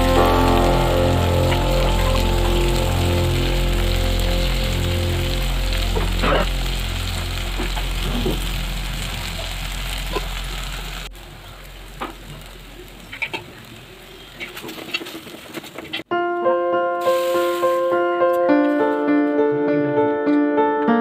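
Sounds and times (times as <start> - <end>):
food sizzling in oil: 0.0 - 14.4, 17.0 - 18.0.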